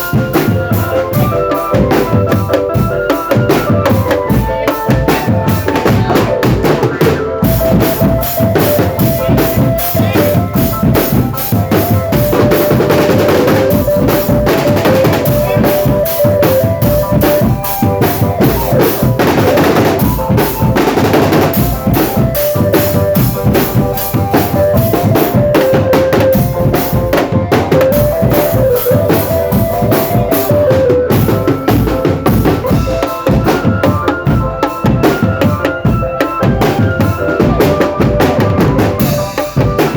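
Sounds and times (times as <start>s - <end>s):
marching drum band playing: 0.0s - 39.9s
melody line over drums: 0.0s - 39.9s.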